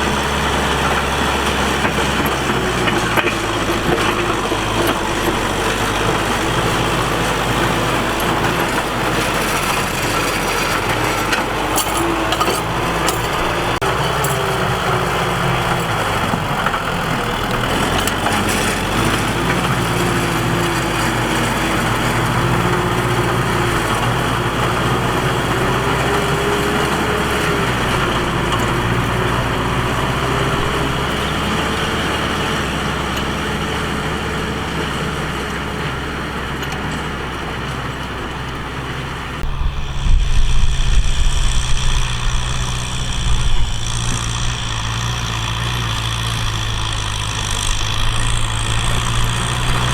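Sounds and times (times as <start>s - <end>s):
tractor engine running: 0.0s - 49.9s
wavering mid-pitched whine: 39.4s - 44.8s.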